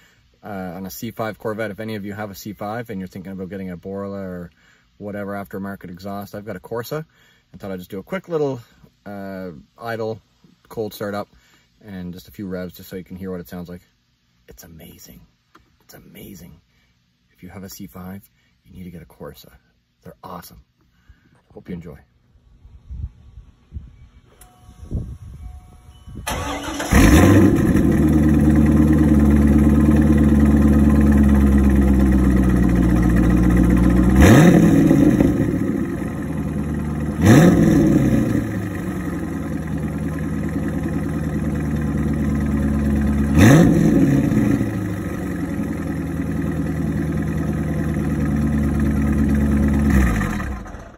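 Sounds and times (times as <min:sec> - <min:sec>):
car engine cold start and idle: 0:24.3 - 0:50.9
car engine revving: 0:26.3 - 0:50.9.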